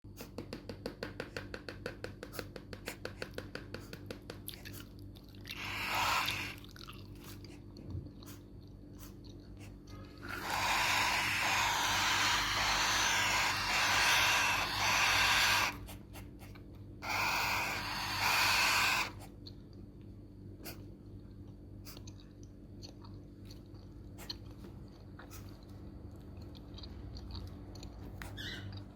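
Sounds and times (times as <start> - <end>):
parrot chicks raspy begging calls: 5.5 - 6.6, 10.2 - 16.0, 17.0 - 19.2.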